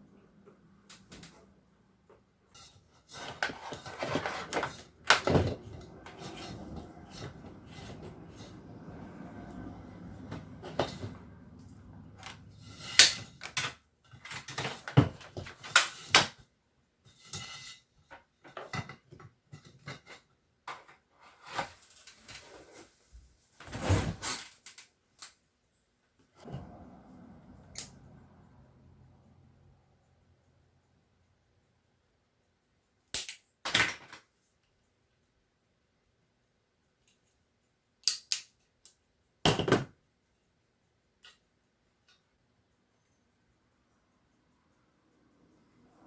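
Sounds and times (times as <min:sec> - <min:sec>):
parts and tools clattering: 0:02.5 - 0:09.5, 0:10.1 - 0:16.4, 0:17.1 - 0:22.4, 0:33.7 - 0:34.3
rustling and scraping: 0:02.5 - 0:16.4, 0:17.0 - 0:25.0.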